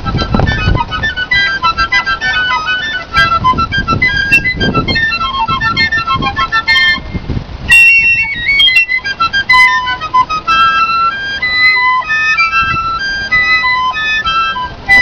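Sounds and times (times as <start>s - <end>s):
piccolo playing held notes: 0.0s - 15.0s.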